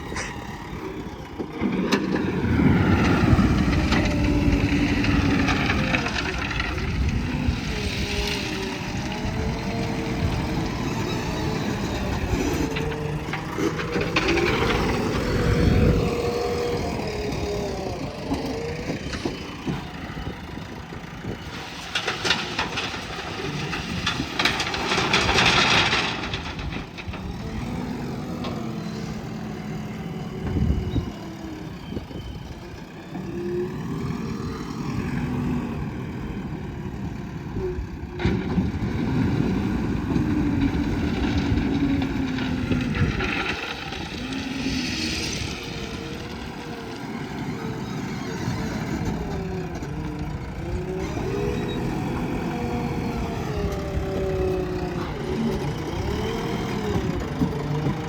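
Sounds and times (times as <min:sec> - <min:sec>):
diesel engine running under load: 0:00.0 - 0:58.0
rattling clatter: 0:18.2 - 0:27.7.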